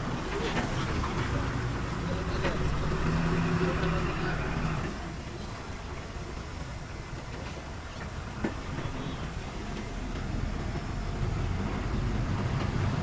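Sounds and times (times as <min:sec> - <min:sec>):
diesel machinery engine rumble: 0:00.0 - 0:13.0.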